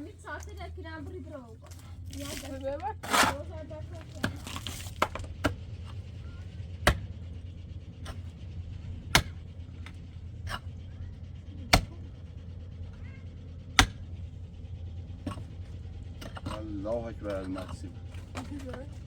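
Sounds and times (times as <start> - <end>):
steady low hum: 0.0 - 19.0
sharp knocks: 6.8 - 7.1.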